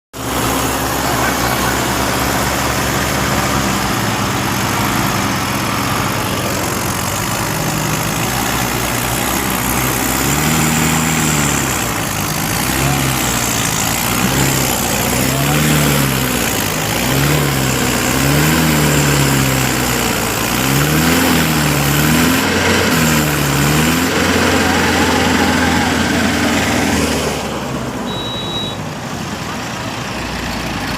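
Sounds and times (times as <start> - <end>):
tractor diesel engine running: 0.1 - 30.9
rising and falling tone: 20.9 - 27.6.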